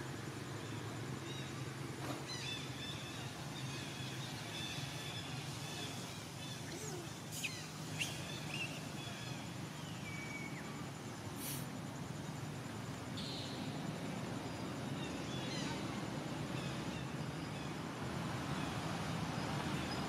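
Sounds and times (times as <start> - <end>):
sharp bird calls: 2.2 - 10.7
high bird chirps: 6.6 - 9.0.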